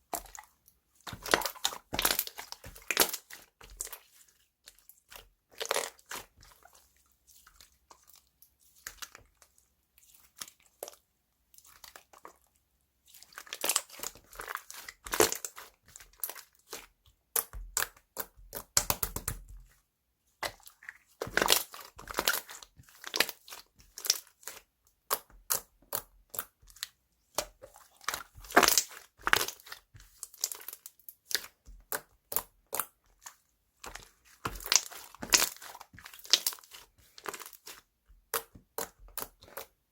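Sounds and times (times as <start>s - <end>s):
slime crackling and popping: 28.4s - 29.7s, 34.4s - 39.7s.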